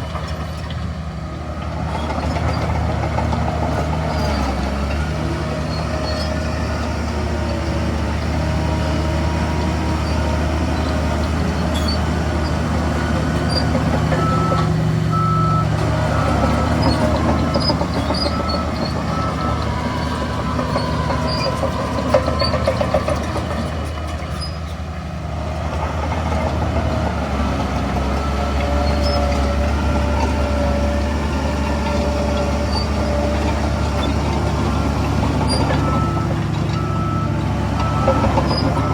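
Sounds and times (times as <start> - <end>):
heavy diesel engines droning: 0.0 - 38.9
reversing alarm beeping: 14.1 - 22.9, 33.8 - 38.9.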